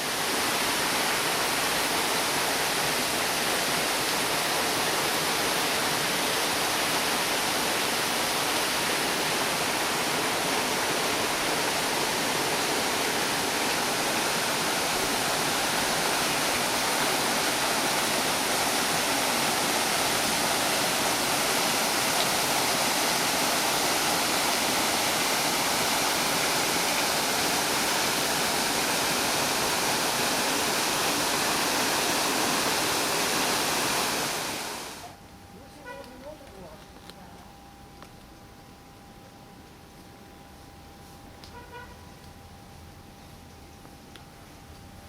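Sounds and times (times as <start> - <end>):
rush of falling water: 0.0 - 35.2.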